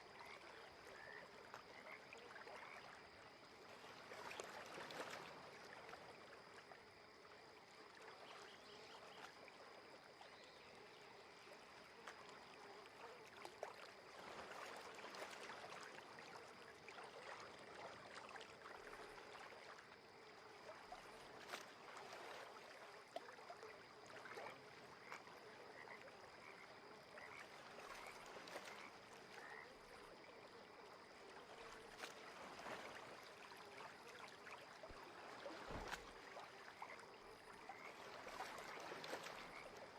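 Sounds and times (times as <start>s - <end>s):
frogs croaking: 0.0s - 39.9s.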